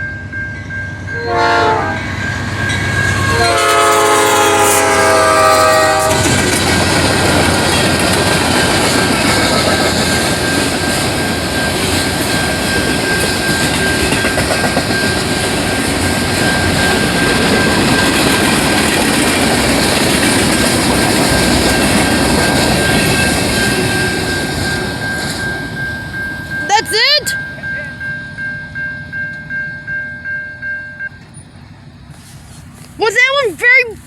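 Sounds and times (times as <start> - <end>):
freight train rumbling and rattling: 0.0 - 34.0
thin steady high tone: 21.7 - 31.2.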